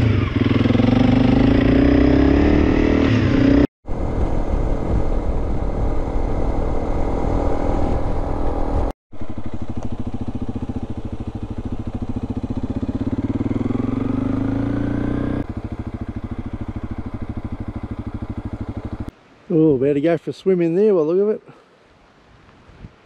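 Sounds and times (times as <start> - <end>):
motorcycle engine running: 0.0 - 19.1.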